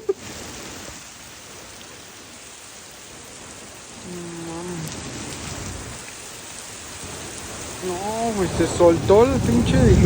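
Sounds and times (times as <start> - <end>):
heavy rain hissing: 0.0 - 10.0.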